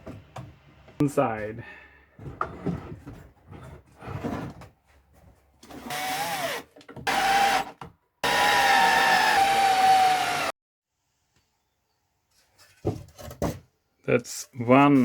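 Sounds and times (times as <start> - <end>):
power drill driving screws into wood: 5.6 - 10.5.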